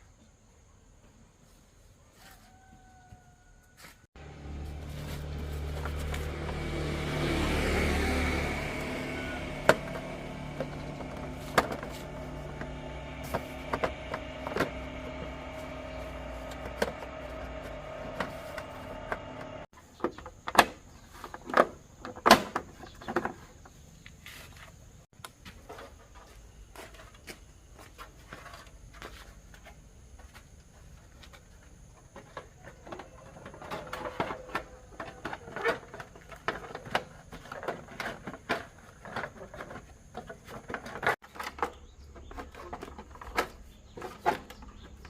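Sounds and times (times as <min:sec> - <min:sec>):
motorcycle engine running: 0:04.2 - 0:19.7
knocks and clicks of tools: 0:09.4 - 0:20.7.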